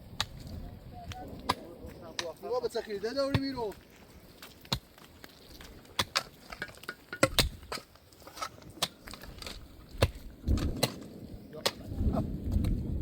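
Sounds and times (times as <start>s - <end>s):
raindrops tapping on tent fabric: 0.0s - 13.0s
low rumble: 10.3s - 13.0s.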